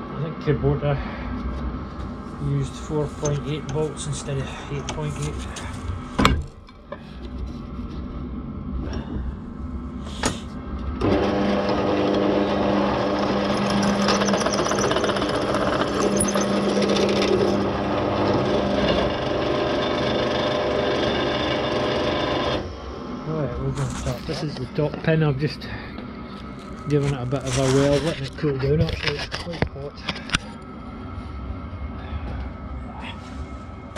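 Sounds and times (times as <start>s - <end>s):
electric welder crackling buzz: 11.0s - 22.9s.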